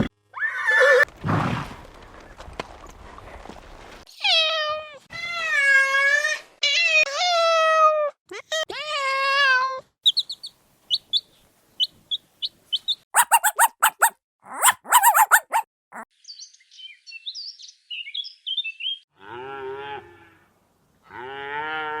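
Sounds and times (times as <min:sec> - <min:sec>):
soft bird twittering: 0:10.1 - 0:14.1
chick peeping: 0:10.1 - 0:15.6
horse whinnying: 0:13.2 - 0:15.6.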